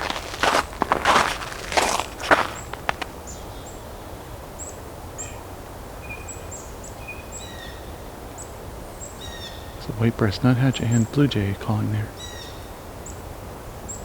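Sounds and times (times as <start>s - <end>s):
crunching footsteps: 0.0s - 3.3s
blue jay calling: 9.0s - 13.2s.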